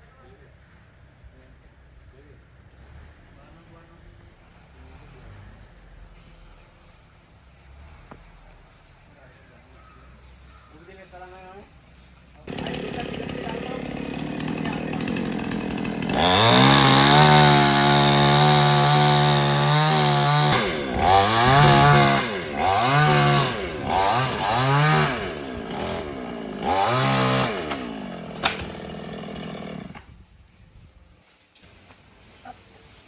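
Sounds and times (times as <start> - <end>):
chainsaw revving: 12.5 - 30.1
sharp click: 28.4 - 28.7.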